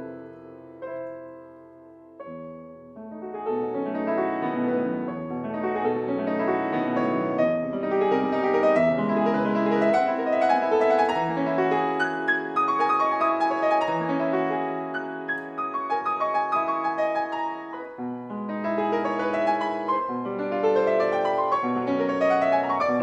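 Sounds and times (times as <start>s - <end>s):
solo piano piece: 0.0s - 23.0s.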